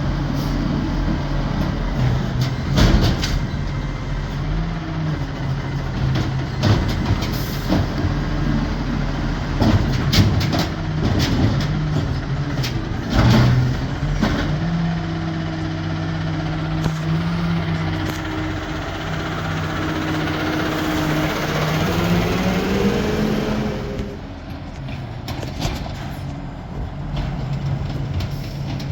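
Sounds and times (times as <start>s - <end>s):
garbage truck engine running: 0.0s - 28.9s
hydraulic whine: 16.6s - 24.3s.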